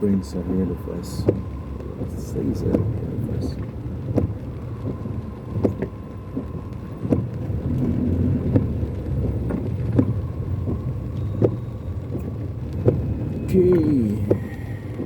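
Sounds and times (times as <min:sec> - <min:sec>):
car engine and road rumble: 0:00.0 - 0:15.0
raindrops tapping on car body: 0:00.0 - 0:15.0.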